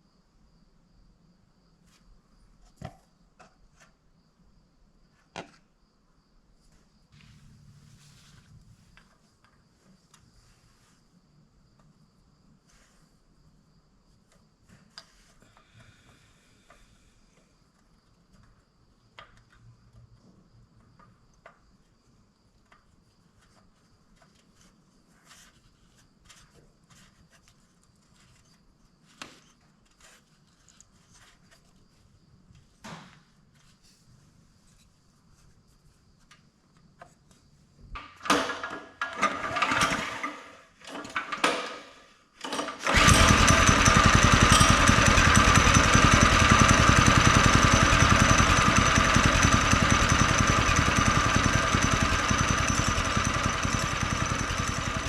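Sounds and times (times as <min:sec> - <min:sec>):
clicks and knocks of tools: 0:38.0 - 0:42.9
small engine sputtering and running: 0:39.1 - 0:40.4, 0:42.5 - 0:55.0.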